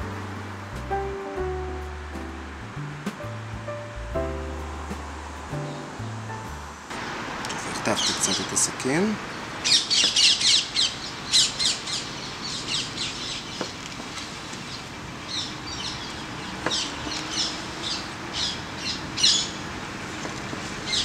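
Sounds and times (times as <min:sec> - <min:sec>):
birds chirping: 0:07.5 - 0:21.0.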